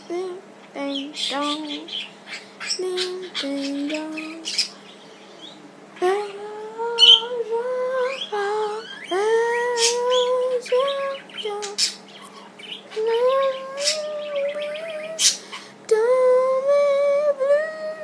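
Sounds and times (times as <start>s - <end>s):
budgerigar chirping and chattering: 1.4s - 5.6s, 9.8s - 10.3s, 11.2s - 15.6s
person humming: 2.8s - 4.6s, 6.0s - 11.8s, 12.9s - 18.0s.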